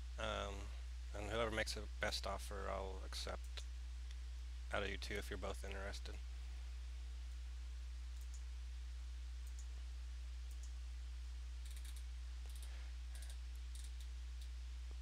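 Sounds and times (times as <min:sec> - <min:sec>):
low electrical hum: 0:00.0 - 0:15.0
faint computer clicks: 0:08.1 - 0:08.5, 0:09.4 - 0:09.7, 0:10.5 - 0:10.8.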